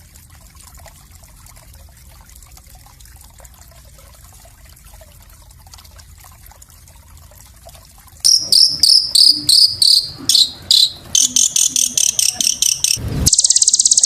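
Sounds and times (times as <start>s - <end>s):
small songbird singing: 8.3s - 14.0s.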